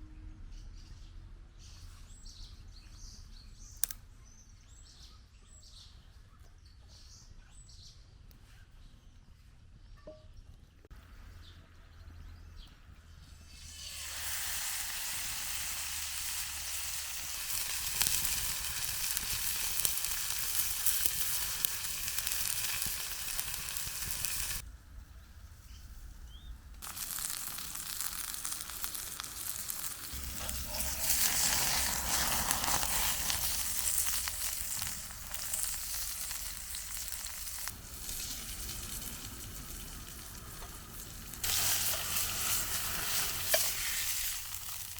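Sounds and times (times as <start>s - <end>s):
food sizzling in a pan: 13.6s - 24.6s, 26.8s - 44.9s.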